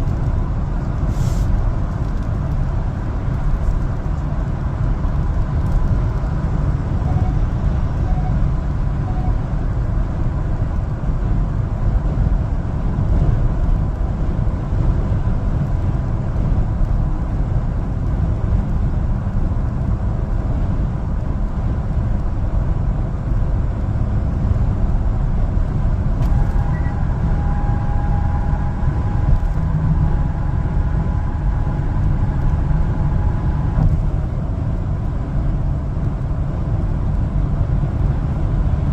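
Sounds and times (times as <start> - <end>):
truck engine and road noise: 0.0 - 38.9.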